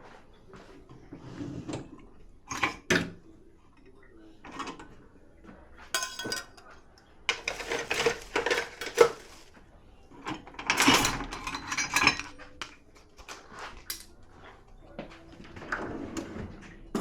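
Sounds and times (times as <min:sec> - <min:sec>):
dishes and cutlery clinking: 0:05.8 - 0:09.5, 0:10.2 - 0:14.2.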